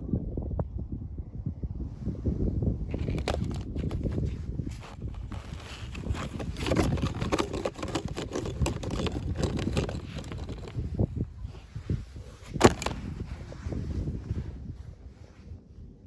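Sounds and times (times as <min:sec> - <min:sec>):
packaging rustling and crackling: 0:02.9 - 0:10.8, 0:12.4 - 0:13.2.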